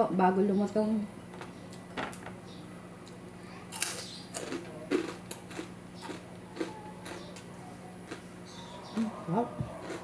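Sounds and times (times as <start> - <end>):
crunching crispy pork rind: 3.1 - 8.4, 9.8 - 10.0.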